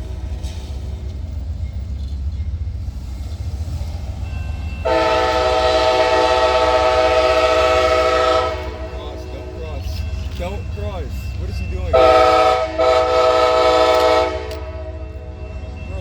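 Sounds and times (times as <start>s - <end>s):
train rumbling: 0.0s - 16.0s
train horn blowing: 4.8s - 9.6s, 11.9s - 15.1s.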